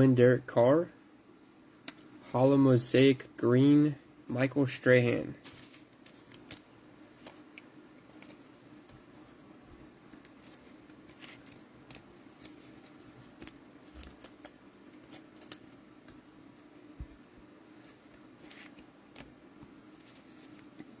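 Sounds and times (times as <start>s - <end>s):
steady low hum: 0.0s - 21.0s
trading cards clicking and rustling: 5.4s - 9.2s, 10.1s - 16.2s, 17.7s - 21.0s.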